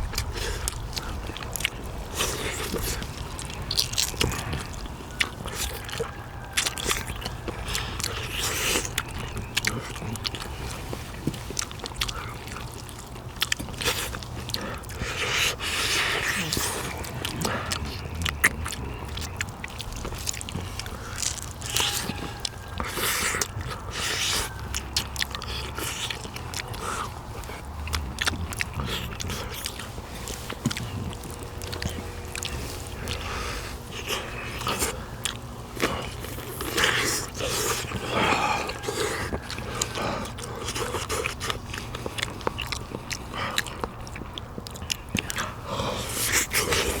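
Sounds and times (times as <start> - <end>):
person chewing meat from bones: 0.0 - 47.0.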